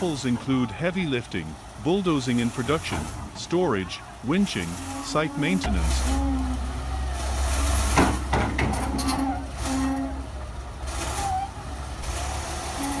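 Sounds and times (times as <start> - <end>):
diesel engine rumbling: 0.0 - 13.0
sharp metallic clanks: 5.6 - 11.2.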